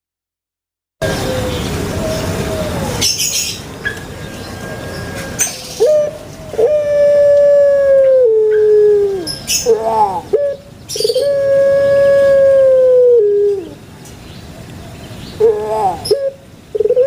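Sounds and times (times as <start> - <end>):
dove long cooing: 1.0 - 3.1, 5.1 - 13.8, 15.4 - 17.0.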